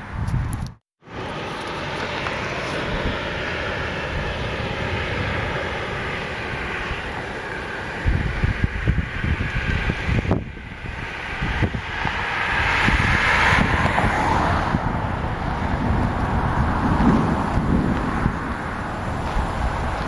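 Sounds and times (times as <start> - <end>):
wind gusts buffeting microphone: 0.0 - 0.8, 1.8 - 20.0
storm wind: 0.0 - 20.0
rain: 11.9 - 20.0.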